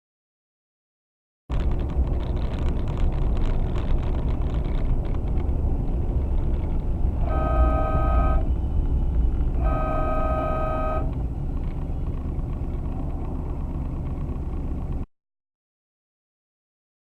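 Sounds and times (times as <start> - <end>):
vehicle driving rumble: 1.5 - 15.1
vehicle horn blast: 7.2 - 8.7, 9.5 - 11.2.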